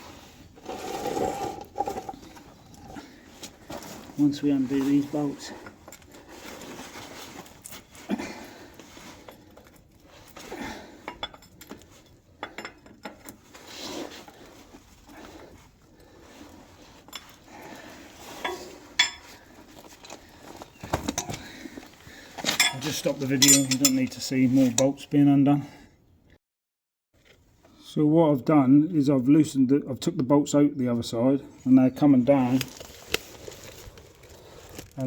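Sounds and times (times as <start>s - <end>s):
spanner clinking on metal bolts: 22.5s - 24.1s.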